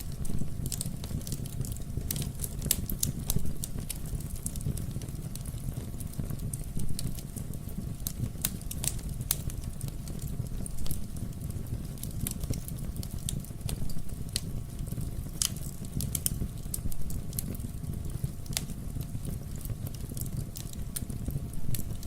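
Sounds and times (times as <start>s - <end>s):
fire crackling and popping: 0.0s - 22.0s
low rumble of flames: 0.0s - 22.0s.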